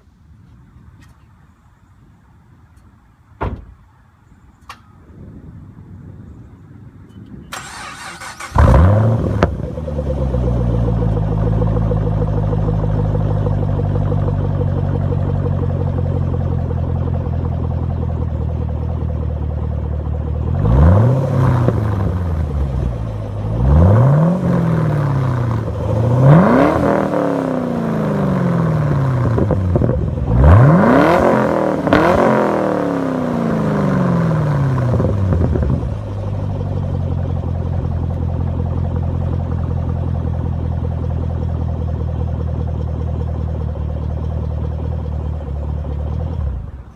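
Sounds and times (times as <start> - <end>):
car engine starting: 7.4 - 46.9
engine revving: 7.6 - 14.4, 20.4 - 36.3
car engine idling: 7.6 - 46.9.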